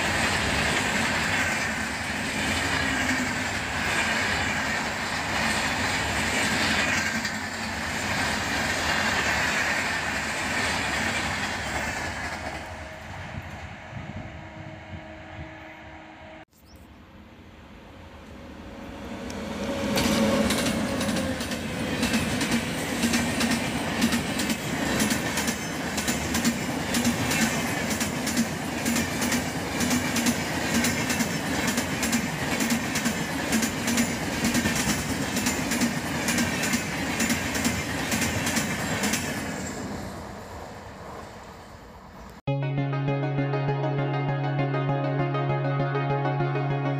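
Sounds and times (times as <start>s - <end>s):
clickety-clack over rail joints: 0.0s - 12.7s, 19.3s - 40.2s
train wheels rushing past: 0.0s - 16.4s, 17.9s - 42.2s.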